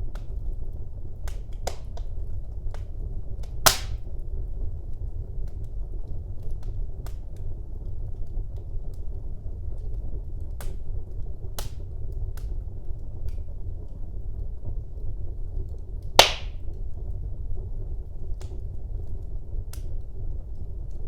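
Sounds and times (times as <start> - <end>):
loud fire crack: 0.0 - 21.0
wood fire crackling: 0.0 - 21.0.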